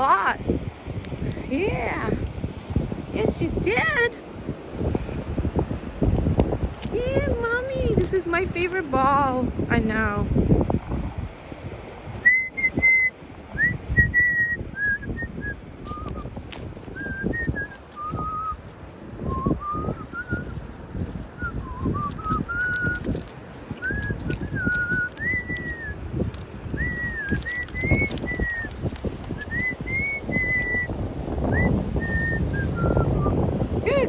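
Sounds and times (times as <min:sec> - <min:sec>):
person whistling a tune: 0:12.2 - 0:16.3, 0:17.0 - 0:18.6, 0:19.2 - 0:20.6, 0:21.4 - 0:23.1, 0:23.8 - 0:26.0, 0:26.8 - 0:28.7, 0:29.4 - 0:30.9, 0:31.5 - 0:33.4.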